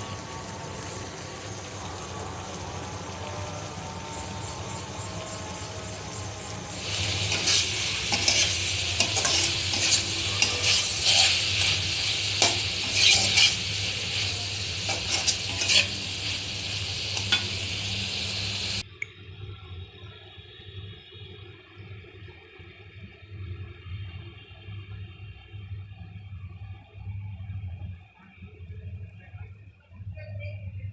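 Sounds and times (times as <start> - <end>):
food sizzling in a pan: 0.0 - 18.8.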